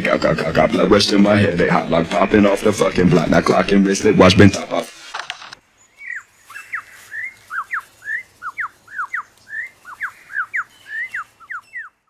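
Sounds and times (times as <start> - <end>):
lyrebird whistling song: 5.8 - 12.0.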